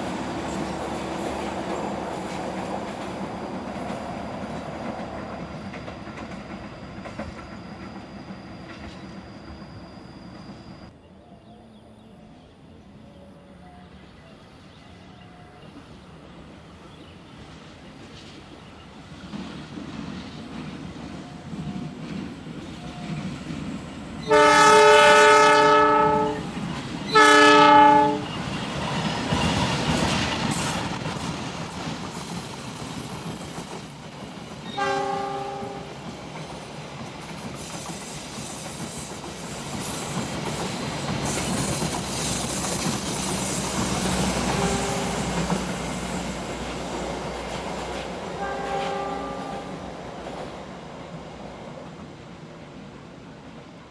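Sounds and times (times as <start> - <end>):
wheels clattering on rails: 0.0 - 9.9, 15.7 - 52.1
train rumbling past: 0.0 - 53.9
train horn blasts: 24.2 - 28.5, 34.7 - 36.0, 44.2 - 45.5, 48.3 - 49.9.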